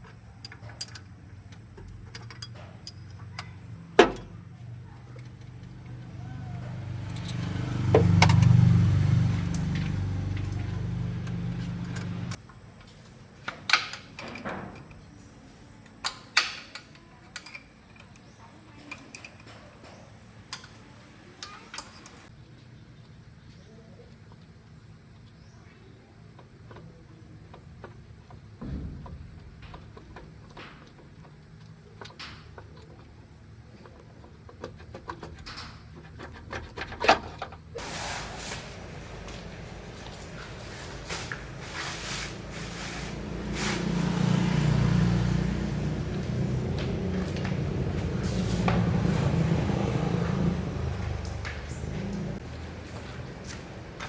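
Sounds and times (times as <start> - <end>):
low engine hum: 3.2 - 12.4, 37.8 - 54.0
light clicks and knocks: 38.6 - 52.4.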